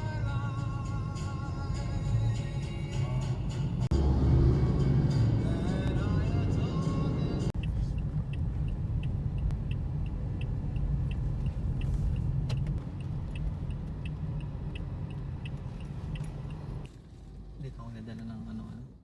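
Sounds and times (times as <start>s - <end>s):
turn signal ticking: 5.2s - 17.0s.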